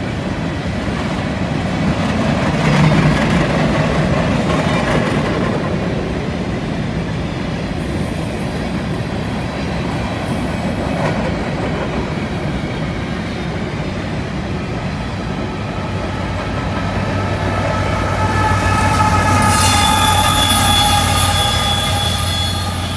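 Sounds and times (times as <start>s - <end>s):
diesel locomotive engine hum: 0.0s - 22.9s
train wheels rumbling on rail: 0.0s - 22.9s
high flange squeal: 8.0s - 22.9s.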